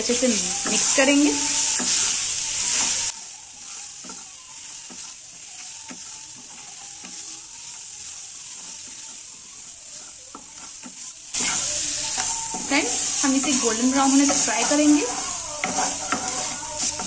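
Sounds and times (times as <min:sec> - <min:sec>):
paste sizzling in oil: 0:00.0 - 0:17.0
spatula scraping and tapping pan: 0:00.4 - 0:03.1, 0:04.0 - 0:04.2, 0:09.9 - 0:17.0.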